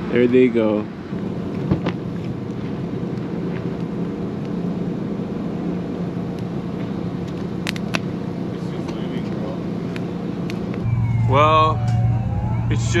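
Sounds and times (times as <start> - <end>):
engine humming: 10.7 - 13.0
background rumble: 10.8 - 13.0.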